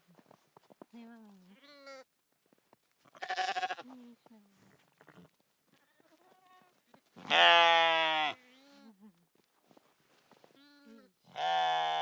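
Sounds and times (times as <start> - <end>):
goat bleating: 3.1 - 3.9, 7.2 - 8.4, 10.6 - 12.0.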